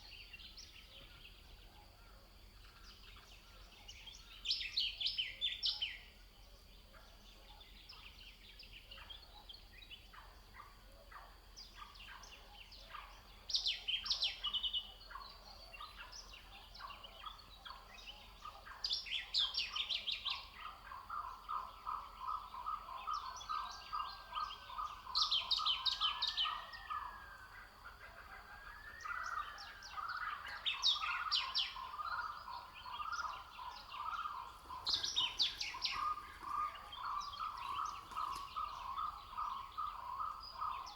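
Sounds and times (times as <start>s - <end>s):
birds trilling song: 11.5s - 40.9s.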